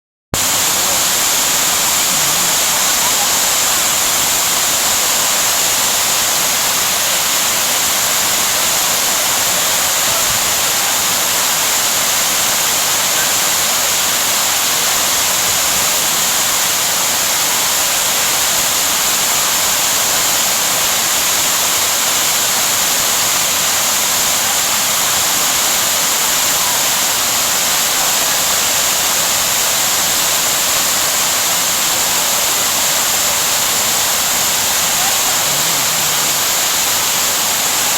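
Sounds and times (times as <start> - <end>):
waterfall pouring: 0.4 - 37.9.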